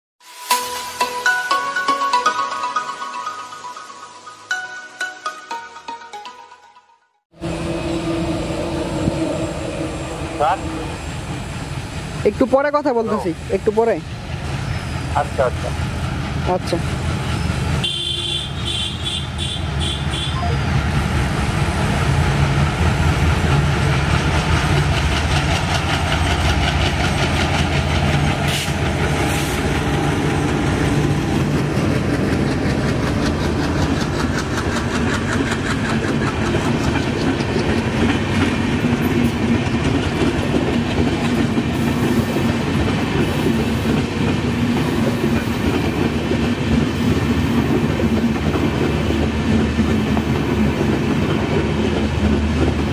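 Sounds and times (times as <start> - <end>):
train wheels clattering over rail joints: 23.0 - 52.9.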